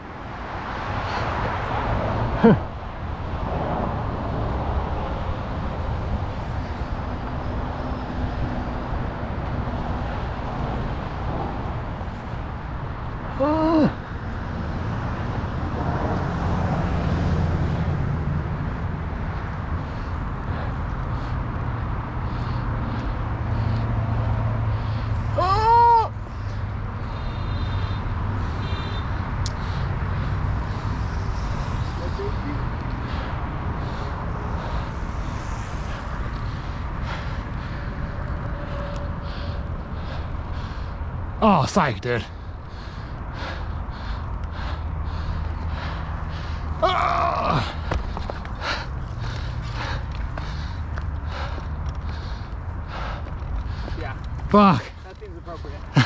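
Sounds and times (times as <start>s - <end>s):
road traffic noise: 0.0s - 56.0s
wind: 0.0s - 56.0s.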